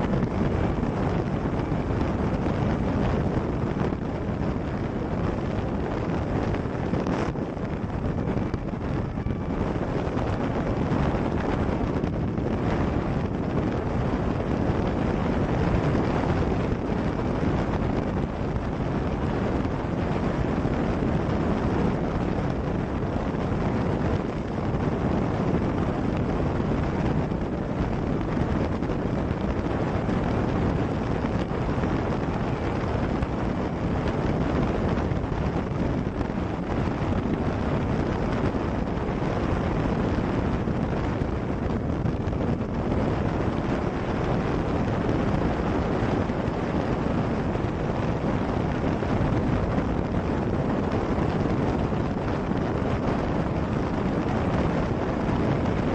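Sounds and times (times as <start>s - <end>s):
motorcycle engine drone: 0.0s - 55.9s
wind rush on microphone: 0.0s - 55.9s.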